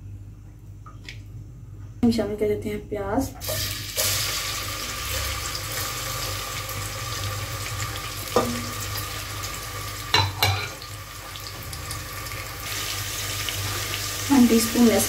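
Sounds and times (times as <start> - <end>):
onions sizzling in oil: 3.4 - 15.0.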